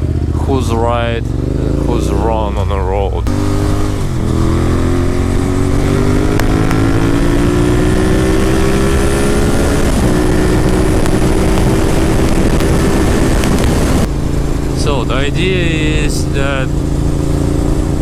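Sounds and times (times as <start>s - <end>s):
wind noise on microphone: 3.5s - 14.7s.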